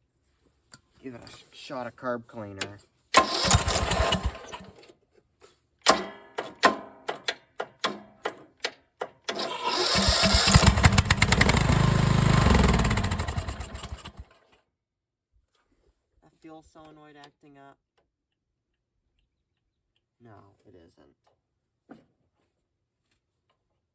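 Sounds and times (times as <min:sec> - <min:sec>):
lawn mower engine cranking and running: 0:02.6 - 0:05.0, 0:09.0 - 0:14.6.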